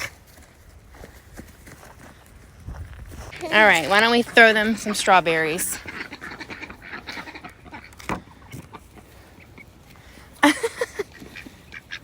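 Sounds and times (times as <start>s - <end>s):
chickens clucking: 3.3s - 12.0s.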